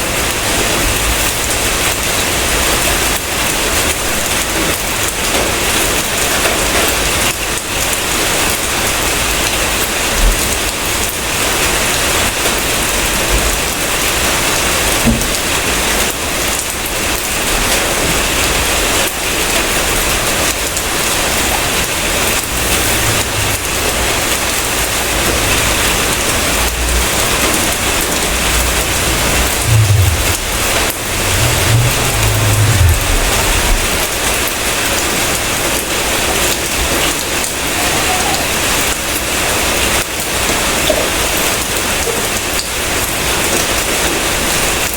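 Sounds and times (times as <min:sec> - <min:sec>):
heavy rain falling: 0:00.0 - 0:44.9
low rumble: 0:21.5 - 0:35.0.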